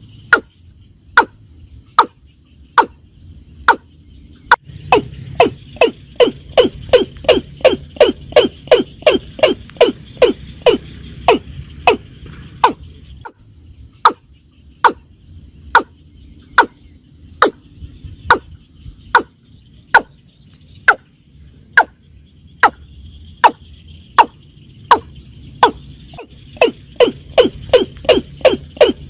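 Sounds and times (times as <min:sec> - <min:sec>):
watercock calling: 0:04.5 - 0:13.4, 0:14.0 - 0:15.1, 0:15.7 - 0:16.8, 0:18.2 - 0:20.2, 0:22.6 - 0:29.0.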